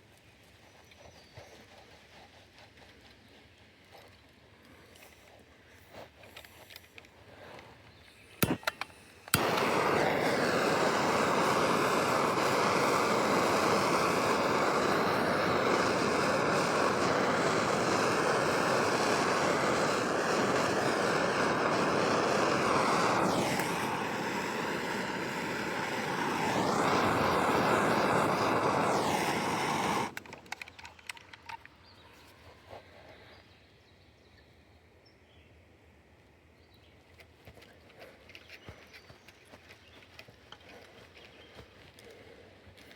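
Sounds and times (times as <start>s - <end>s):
air hissing into a line: 8.2s - 31.4s
sharp clicks: 8.4s - 10.4s, 29.1s - 31.8s.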